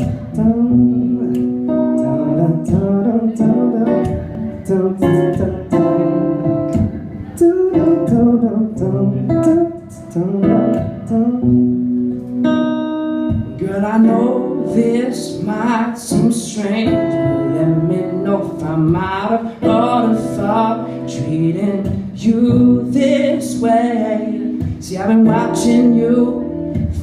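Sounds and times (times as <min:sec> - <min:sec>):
acoustic guitar playing chords: 0:00.0 - 0:27.0.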